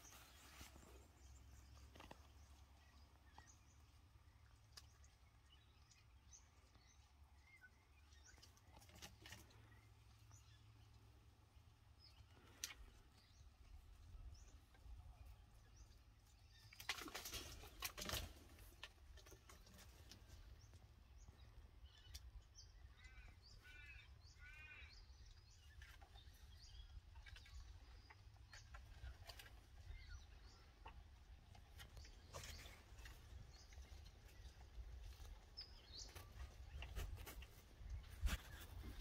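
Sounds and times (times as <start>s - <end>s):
rustling noise: 0.0s - 1.2s, 32.1s - 39.0s.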